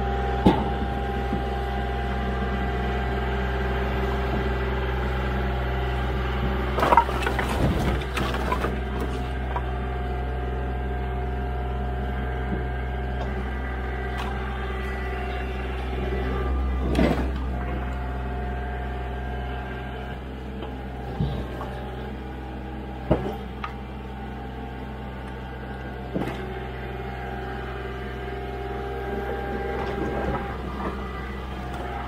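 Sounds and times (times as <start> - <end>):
engine running: 0.0 - 32.0
firewood knocking as it lands: 6.8 - 9.6.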